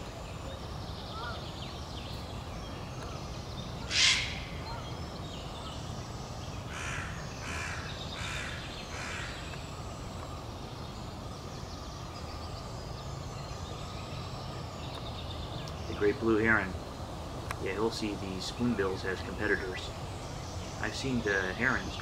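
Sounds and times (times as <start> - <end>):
low background noise: 0.0 - 22.0
bird caws: 1.1 - 1.5, 3.8 - 4.9, 6.7 - 9.6
bird squawk: 1.1 - 1.6, 3.8 - 5.0.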